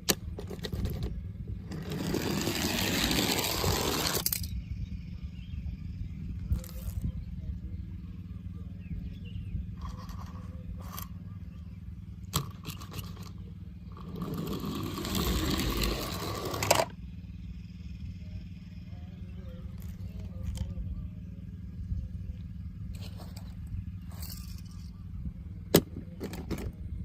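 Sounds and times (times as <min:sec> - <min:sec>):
toy cars scraping and rattling: 0:00.0 - 0:04.5, 0:06.5 - 0:07.1, 0:09.8 - 0:11.2, 0:12.3 - 0:17.0, 0:22.9 - 0:25.0, 0:26.2 - 0:26.8
steady low hum: 0:00.0 - 0:27.0.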